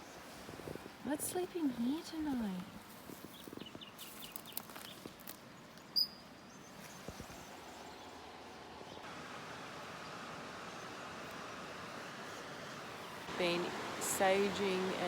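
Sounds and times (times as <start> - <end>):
bird chirping: 3.2 - 9.1.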